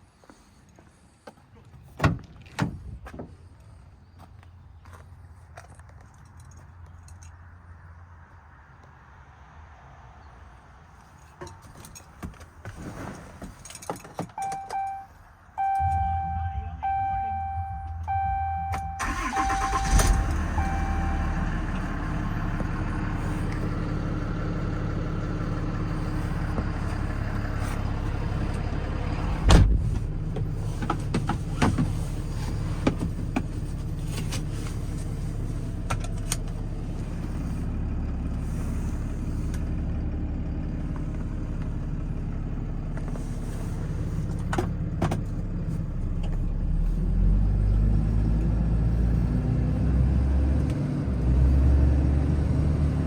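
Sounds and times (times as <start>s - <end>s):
diesel truck engine idling: 15.6s - 31.1s
loud thump: 29.3s - 30.1s.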